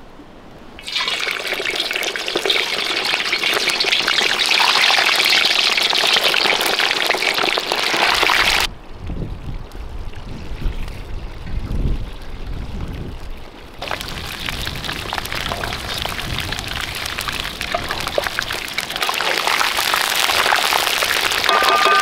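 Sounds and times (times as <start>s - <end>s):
meat sizzling in hot fat: 0.8s - 8.7s, 13.8s - 22.0s
wind rumble on microphone: 8.6s - 19.0s.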